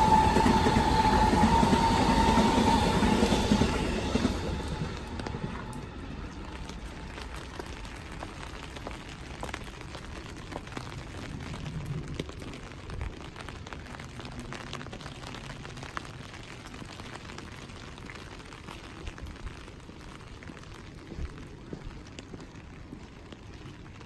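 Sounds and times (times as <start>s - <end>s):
low rumble: 0.0s - 14.2s
rain hiss: 0.0s - 24.0s
raindrops ticking: 3.6s - 24.0s.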